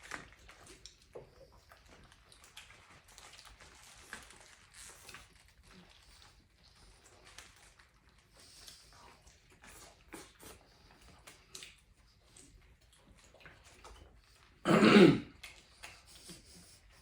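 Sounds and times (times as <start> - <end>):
person coughing: 14.7 - 15.3.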